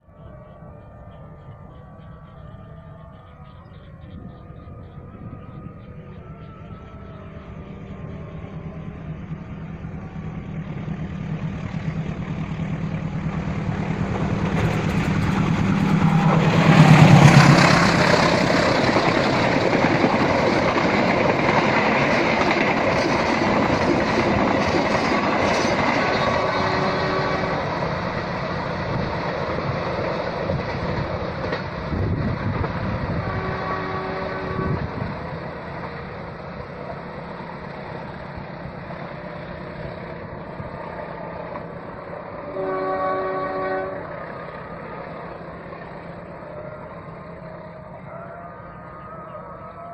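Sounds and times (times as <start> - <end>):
locomotive engine drone: 0.0 - 49.9
carriages clattering over rails: 6.6 - 42.3.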